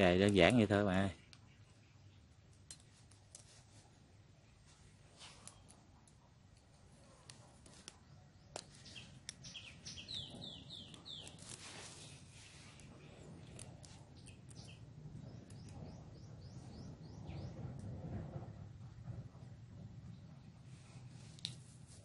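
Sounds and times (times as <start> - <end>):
faint bird chirps: 0.0 - 2.5, 7.9 - 17.9.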